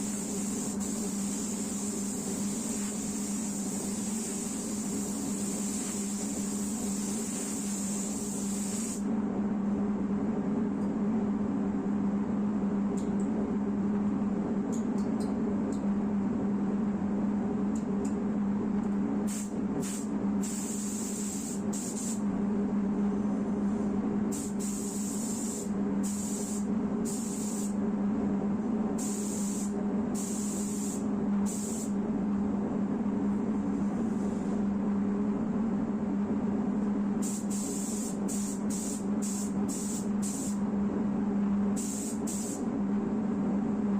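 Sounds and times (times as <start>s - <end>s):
air spray gun hissing: 0.0s - 9.1s, 19.3s - 22.2s, 24.3s - 27.8s, 29.0s - 31.9s, 37.2s - 40.6s, 41.8s - 42.6s
low hum of shop machinery: 0.0s - 43.9s.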